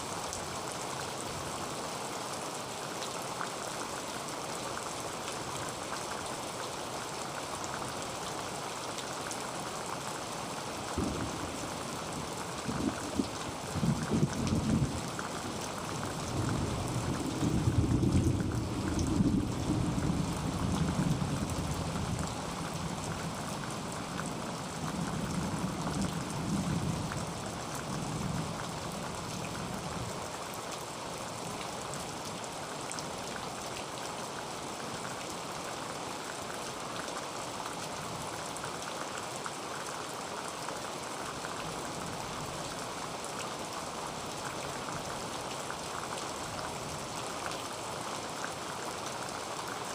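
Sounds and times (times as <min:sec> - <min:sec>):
heavy rain on a tin roof: 0:00.0 - 0:49.9
low rumble of thunder: 0:11.0 - 0:15.1, 0:16.3 - 0:22.3.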